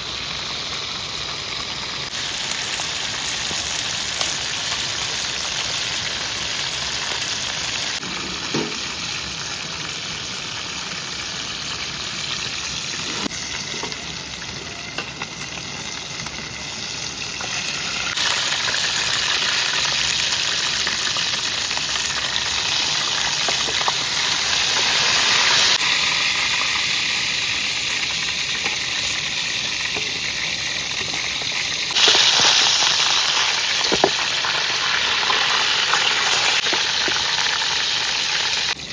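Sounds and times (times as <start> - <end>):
food sizzling in hot oil: 0.0 - 38.9
oil crackles: 17.3 - 38.8.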